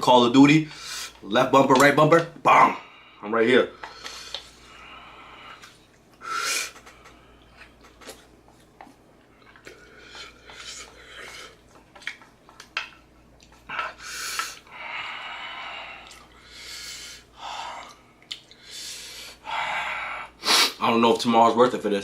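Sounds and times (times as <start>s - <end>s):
person panting and sniffing: 18.6s - 20.8s.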